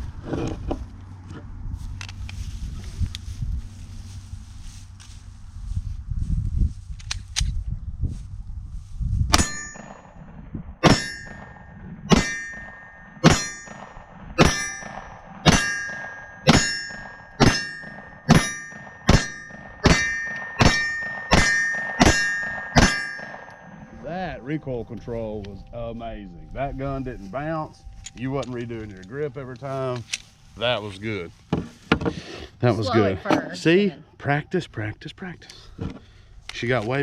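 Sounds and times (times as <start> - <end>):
gun handling noise: 1.9 - 2.4, 6.9 - 7.6, 27.9 - 30.4
steel target ringing: 9.3 - 28.8
pistol shots: 12.1 - 23.9.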